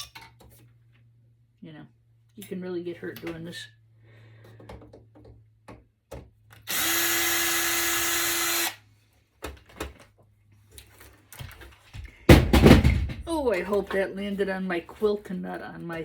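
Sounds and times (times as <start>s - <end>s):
power drill running: 6.6s - 8.8s.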